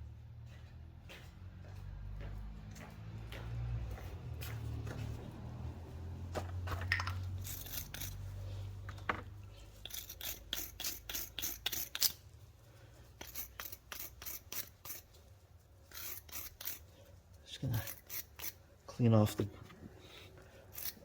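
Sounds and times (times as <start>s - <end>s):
wire brush scrubbing bolt threads: 7.0s - 8.3s, 9.7s - 12.2s, 13.2s - 15.3s, 15.9s - 16.9s, 17.6s - 18.6s, 20.7s - 21.0s.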